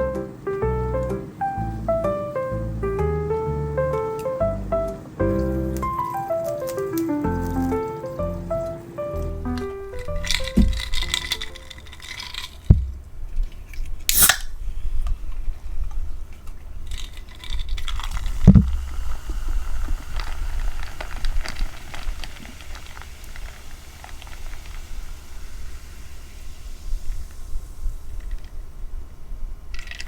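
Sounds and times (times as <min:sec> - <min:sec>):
dull thumps: 0:07.2 - 0:11.2, 0:12.7 - 0:13.2
short sharp burst: 0:14.1 - 0:14.6.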